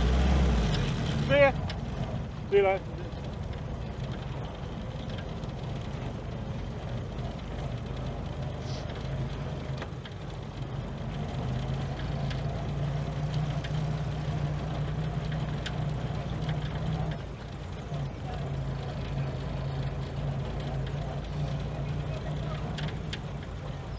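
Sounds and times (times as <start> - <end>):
car engine running: 0.0 - 23.9.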